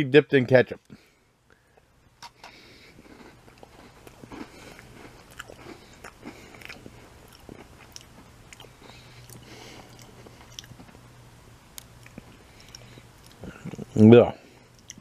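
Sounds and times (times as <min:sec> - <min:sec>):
person crunching a cookie: 0:02.3 - 0:11.0.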